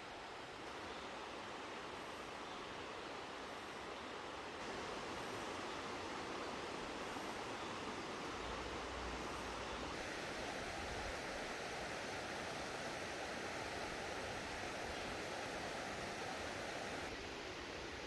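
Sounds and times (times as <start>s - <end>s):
stream water rushing over rocks: 10.0s - 17.1s.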